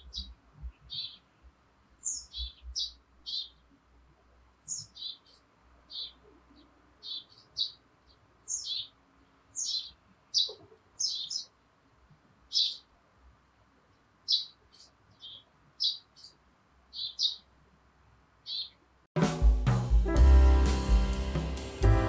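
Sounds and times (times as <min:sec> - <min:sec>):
small bird chirping: 0:00.0 - 0:03.8, 0:04.6 - 0:11.6, 0:12.4 - 0:13.0, 0:13.8 - 0:17.6, 0:18.4 - 0:18.9.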